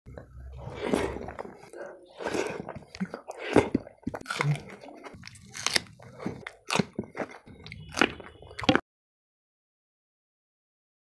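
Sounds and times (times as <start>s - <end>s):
wet chewing of food: 0.1s - 8.8s
crunchy bites: 2.3s - 8.8s.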